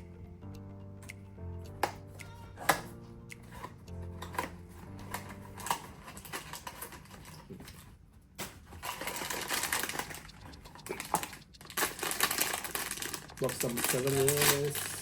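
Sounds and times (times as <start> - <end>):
packaging taps and clicks: 1.0 - 15.0
packaging rustling and crinkling: 5.0 - 15.0.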